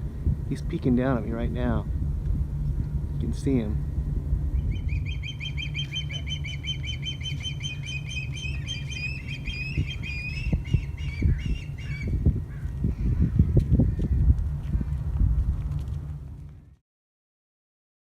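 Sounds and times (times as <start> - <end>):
low rumble: 0.0 - 16.8
osprey cheeping calls: 4.5 - 12.6.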